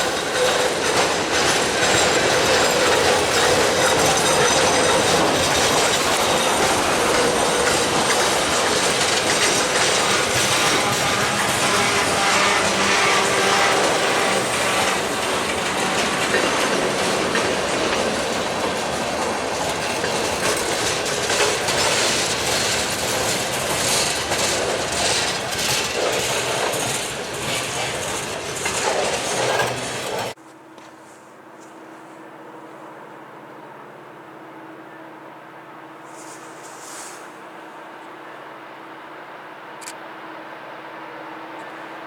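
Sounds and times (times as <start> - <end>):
freight train wheels clattering: 0.0 - 30.4.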